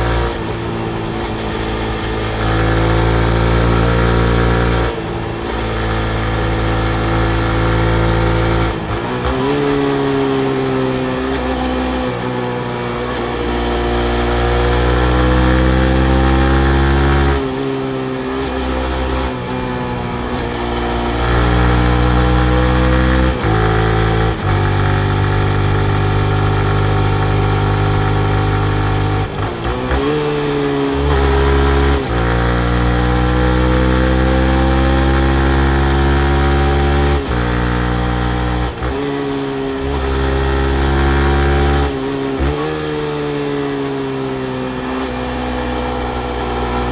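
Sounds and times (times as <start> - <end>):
motorcycle engine in traffic: 0.0 - 46.9.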